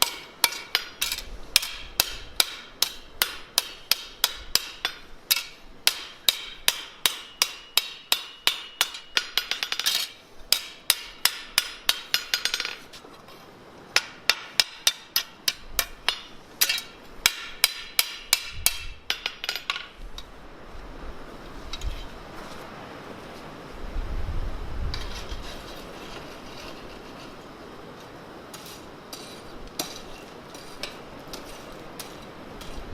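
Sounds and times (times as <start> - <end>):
hammer ringing on anvil: 0.0 - 1.0, 1.6 - 9.8.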